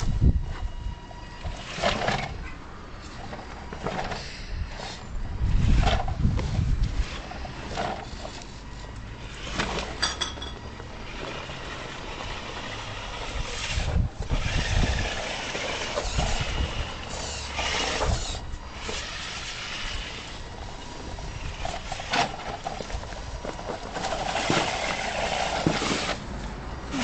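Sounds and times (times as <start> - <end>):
toy car motor whirring: 11.1 - 26.2.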